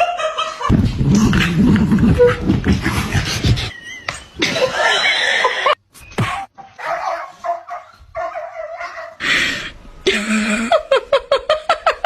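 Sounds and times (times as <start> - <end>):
dog barking and yipping: 6.2 - 9.2.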